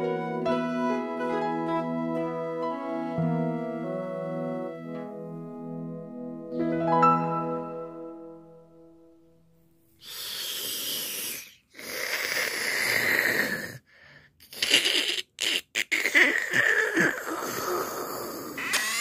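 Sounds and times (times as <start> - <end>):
piano chord: 0.0 - 9.8
breathy wheezing noises: 9.9 - 18.7.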